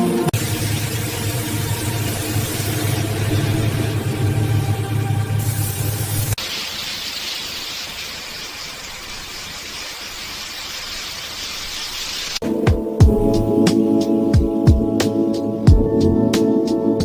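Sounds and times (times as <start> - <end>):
steady spraying hiss: 0.0 - 4.4, 5.4 - 12.4
engine running: 0.0 - 6.4
music with a beat: 12.4 - 17.0.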